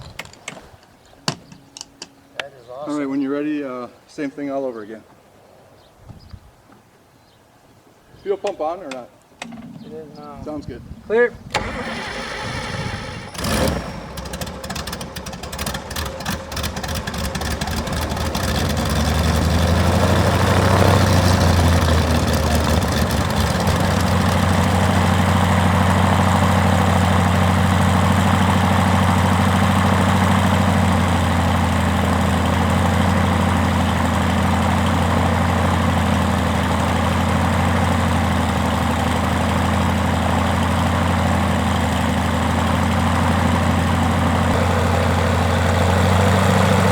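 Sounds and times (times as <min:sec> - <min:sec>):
aircraft engine starting: 0:09.4 - 0:46.9.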